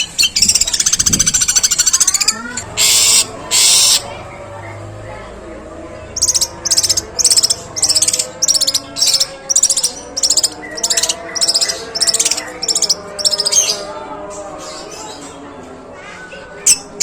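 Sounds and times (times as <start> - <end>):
bird harsh rattling calls: 0.0 - 4.2, 6.2 - 13.9.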